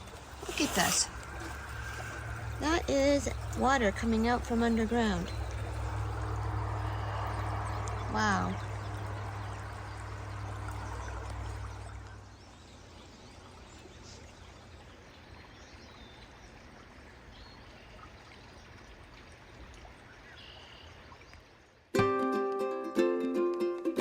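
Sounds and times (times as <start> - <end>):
spring water trickling: 0.0 - 21.9
ukulele music: 21.9 - 24.0.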